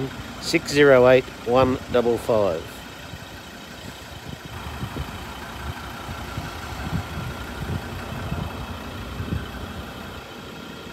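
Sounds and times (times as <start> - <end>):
vehicle engine idling: 0.0 - 10.9
irregular low rumbling: 4.3 - 10.3.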